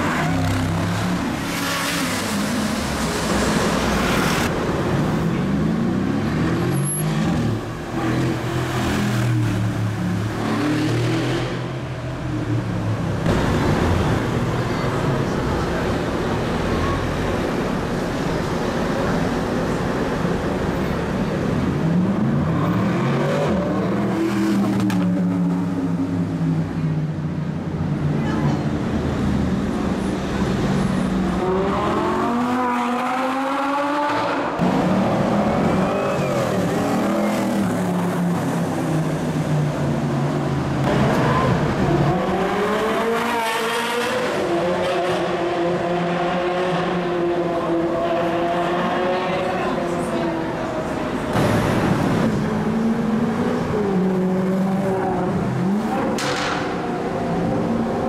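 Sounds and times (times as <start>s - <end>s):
supercar engines accelerating hard: 28.8s - 58.0s.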